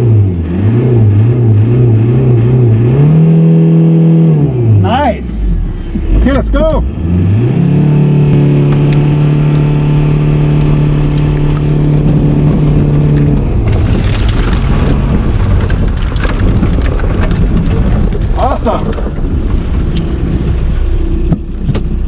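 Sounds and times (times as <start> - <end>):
engine revving: 0.0 - 22.0
crunching and crackles: 8.4 - 22.0.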